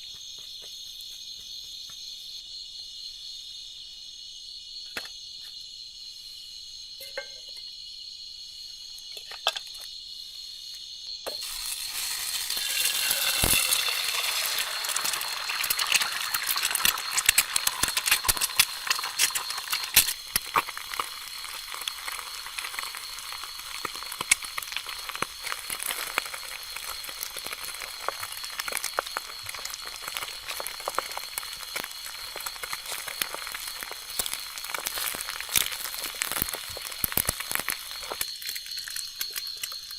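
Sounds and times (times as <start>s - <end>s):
crickets chirping: 0.0s - 39.9s
food frying in hot oil: 11.3s - 39.9s.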